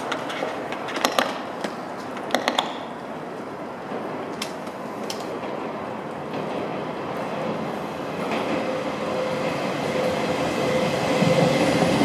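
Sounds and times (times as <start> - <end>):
wheels clicking over rail joints: 0.0 - 3.1, 3.8 - 8.8
train rumbling: 2.9 - 12.0.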